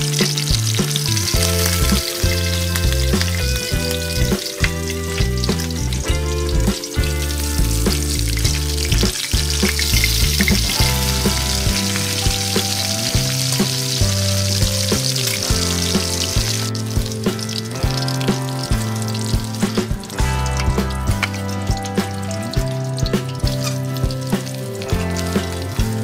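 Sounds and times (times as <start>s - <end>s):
background music with bass: 0.0s - 26.0s
fish sizzling in hot oil: 0.0s - 26.0s.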